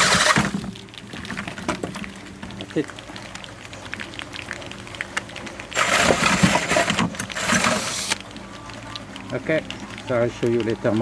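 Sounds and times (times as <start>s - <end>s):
electric drill drilling metal: 0.0s - 0.6s, 7.4s - 8.2s.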